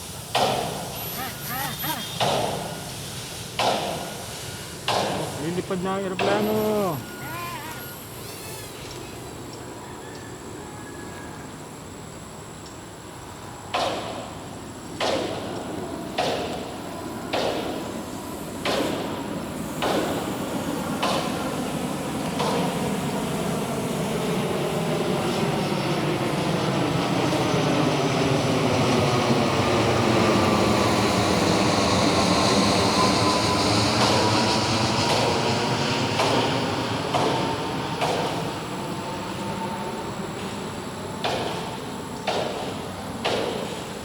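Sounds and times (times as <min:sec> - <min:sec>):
sharp pulses: 0:00.6 - 0:02.9
model plane motors whining: 0:05.4 - 0:09.4.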